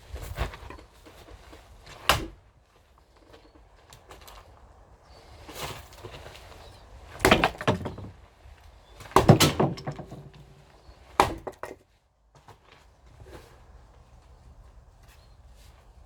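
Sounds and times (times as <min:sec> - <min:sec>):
axe splitting firewood: 0:01.9 - 0:02.4, 0:07.1 - 0:08.2, 0:09.0 - 0:11.8
wood clattering: 0:07.2 - 0:08.2, 0:09.0 - 0:11.8.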